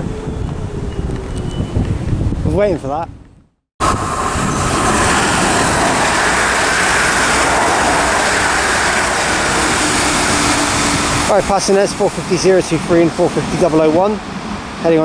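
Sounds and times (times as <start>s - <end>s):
train wheels on rails: 3.8s - 15.0s.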